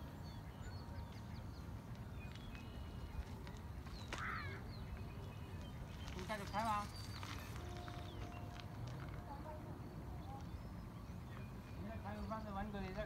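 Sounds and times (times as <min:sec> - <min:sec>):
birds chirping: 0:00.0 - 0:13.0
harsh bird call: 0:04.0 - 0:04.8.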